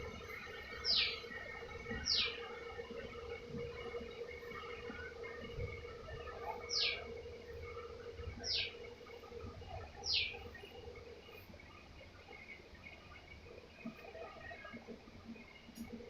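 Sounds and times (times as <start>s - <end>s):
steady hum: 0.0s - 16.0s
faint chirping: 6.2s - 16.0s.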